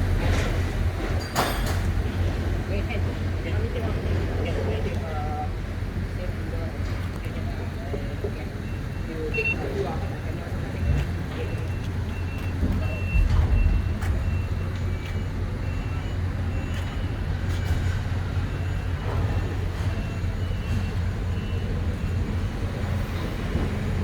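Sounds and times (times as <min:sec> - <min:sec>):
diesel engine humming: 0:00.0 - 0:24.0
warning beeper short beeps: 0:08.6 - 0:22.1.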